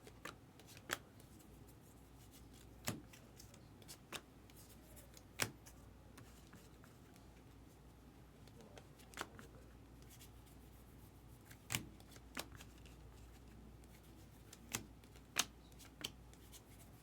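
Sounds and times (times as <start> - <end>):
cards being flipped through: 0.1 - 1.4, 2.3 - 6.8, 11.5 - 13.5, 14.4 - 16.8.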